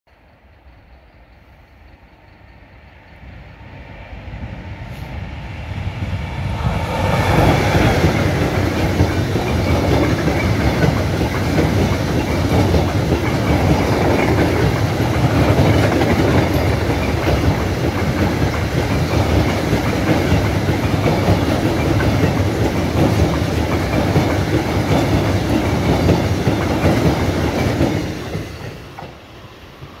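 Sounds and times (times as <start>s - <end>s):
freight train wheels rumbling: 0.1s - 30.0s.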